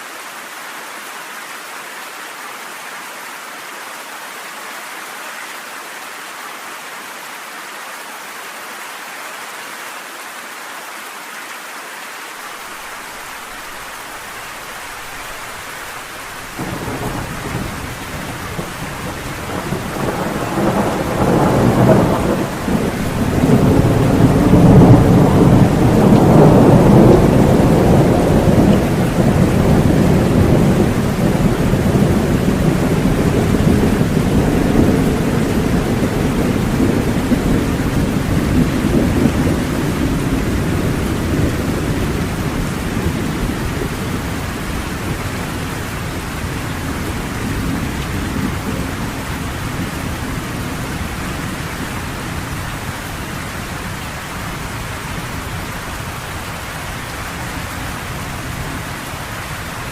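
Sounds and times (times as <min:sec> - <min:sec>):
heavy rain falling: 0:00.0 - 0:59.9
rolling thunder: 0:16.3 - 0:56.5.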